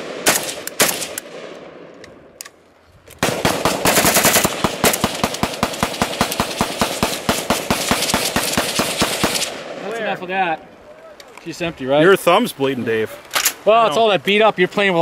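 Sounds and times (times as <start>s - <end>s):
single rifle shots: 0.0s - 2.3s, 3.2s - 10.1s.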